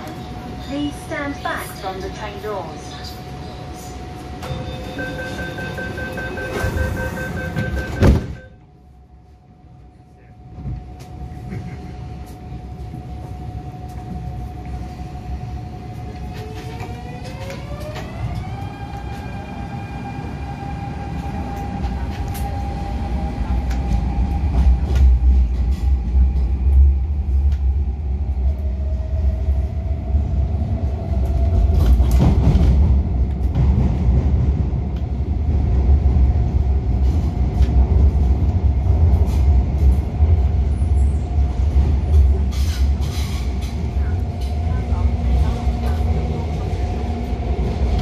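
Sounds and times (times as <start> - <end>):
wheels rumbling on track: 9.8 - 48.0
train clatter: 31.2 - 40.7.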